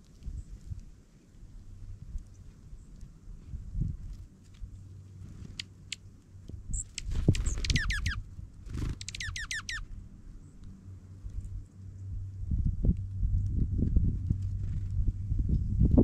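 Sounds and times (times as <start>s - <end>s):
bird trilling: 6.7s - 9.9s
low rumbling thumps: 12.2s - 16.0s.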